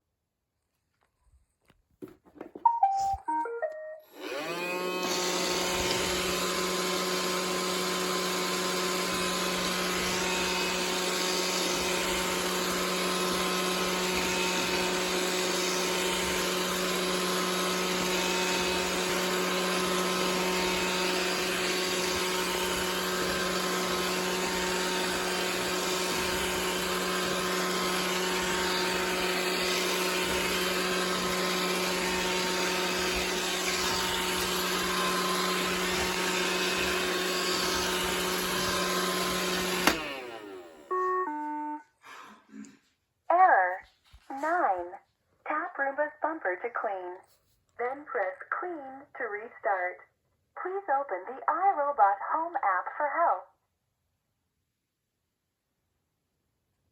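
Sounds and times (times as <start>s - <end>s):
robot vacuum whirring: 4.1s - 41.3s.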